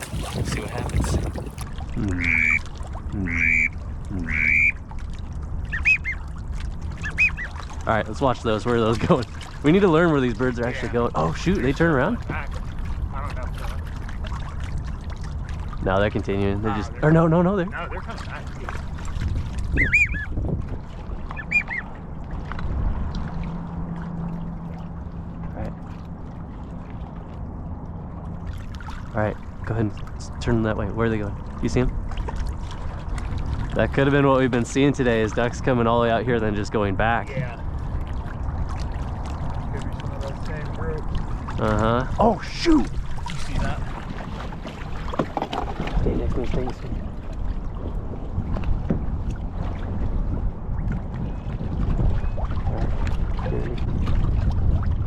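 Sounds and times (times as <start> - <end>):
low steady hum: 0.0 - 55.0
sloshing water: 0.0 - 55.0
wind rumble on microphone: 0.0 - 55.0
goose clucking: 2.2 - 2.6, 3.2 - 4.8
goose honking: 2.2 - 2.6, 3.2 - 4.8.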